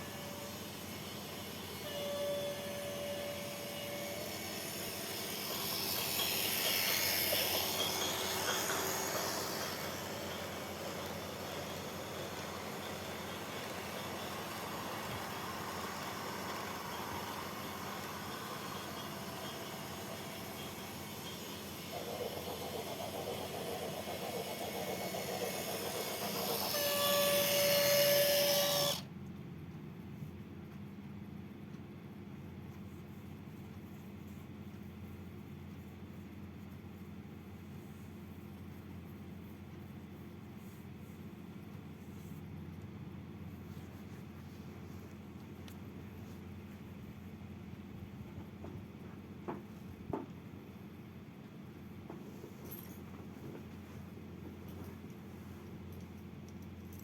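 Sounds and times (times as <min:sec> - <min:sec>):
brief steady tone: 0:00.0 - 0:00.8, 0:01.8 - 0:04.5, 0:26.7 - 0:28.9
train whistle: 0:00.0 - 0:00.8, 0:01.8 - 0:04.8, 0:26.3 - 0:29.0
train passing: 0:00.0 - 0:29.0.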